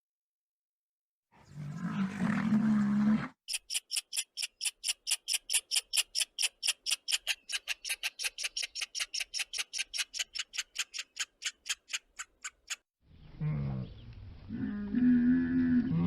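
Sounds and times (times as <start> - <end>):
animal chirping: 3.5 - 12.8.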